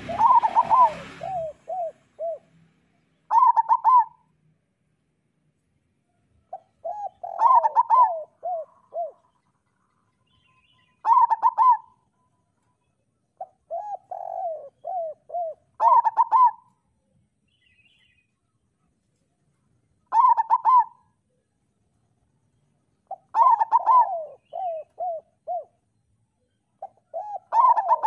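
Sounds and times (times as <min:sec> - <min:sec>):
dove cooing song: 0:00.0 - 0:02.6, 0:03.2 - 0:04.3, 0:06.4 - 0:12.3, 0:13.4 - 0:16.9, 0:20.0 - 0:21.5, 0:23.0 - 0:28.0.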